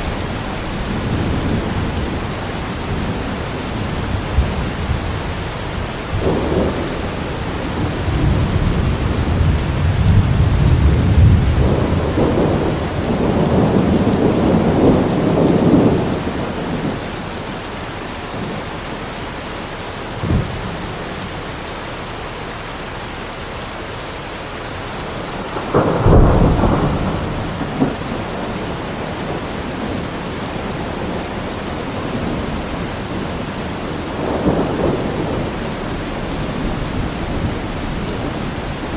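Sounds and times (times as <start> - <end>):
thunder rumbling: 0.0 - 19.0, 20.0 - 21.7, 24.6 - 38.9
heavy rain: 0.0 - 38.9
sharp thunder clap: 6.2 - 16.9, 25.4 - 30.0.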